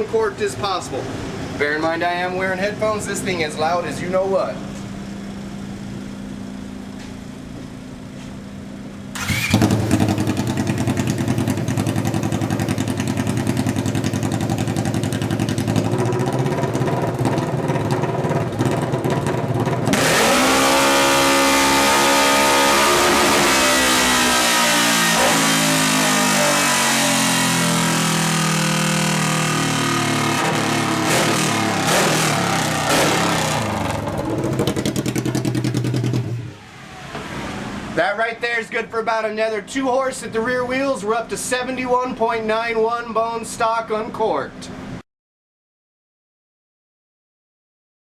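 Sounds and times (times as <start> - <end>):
loud engine revving: 9.2 - 38.0.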